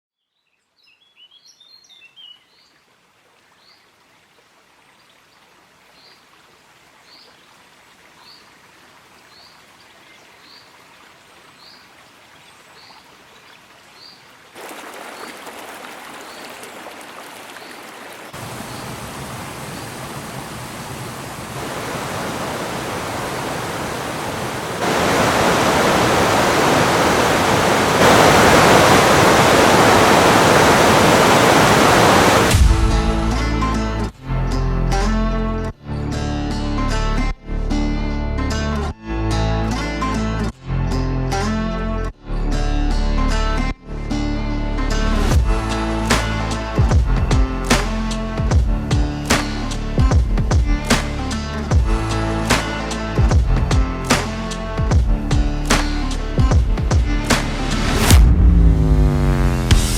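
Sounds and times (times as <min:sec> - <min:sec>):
whitewater rushing: 0:14.6 - 0:33.8, 0:45.2 - 0:48.2, 0:50.7 - 0:59.9.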